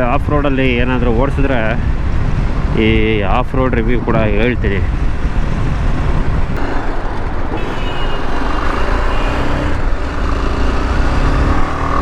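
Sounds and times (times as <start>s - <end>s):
wind buffeting microphone: 0.0s - 12.0s
motorcycle engine under throttle: 5.6s - 12.0s.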